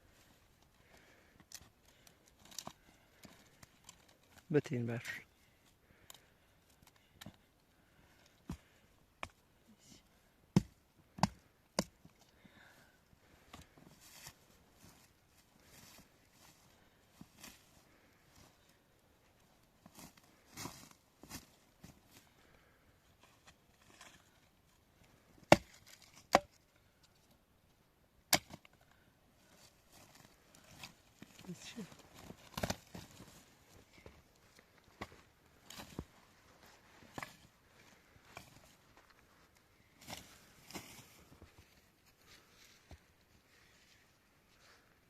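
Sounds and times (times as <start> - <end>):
axe chopping firewood: 10.5 - 12.0, 25.4 - 26.6, 28.3 - 28.7, 32.5 - 32.9.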